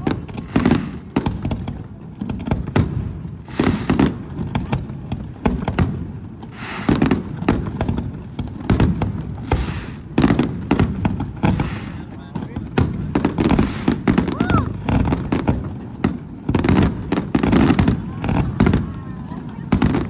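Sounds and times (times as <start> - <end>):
fireworks banging: 0.0 - 20.0
crackling shells hissing: 0.4 - 1.1, 11.4 - 12.1, 13.5 - 14.2.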